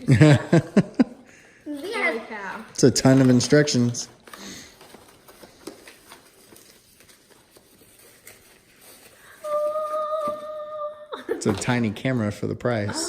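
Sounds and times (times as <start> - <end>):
packaging rustling and clicks: 2.8 - 9.2
person humming: 9.4 - 11.2.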